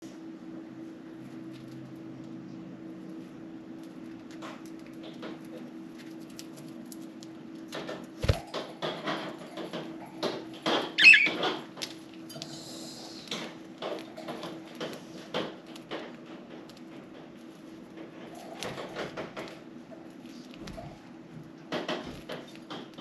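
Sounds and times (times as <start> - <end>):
bird chirp: 11.0 - 11.4.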